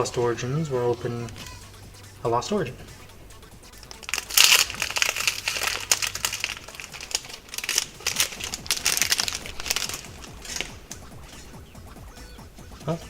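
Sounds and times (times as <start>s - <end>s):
foil wrapper crinkling: 3.8s - 11.6s.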